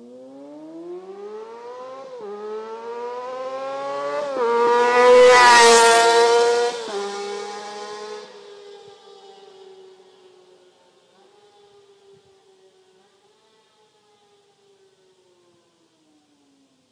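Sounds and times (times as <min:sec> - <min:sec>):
motorcycle accelerating and upshifting: 0:00.0 - 0:12.3.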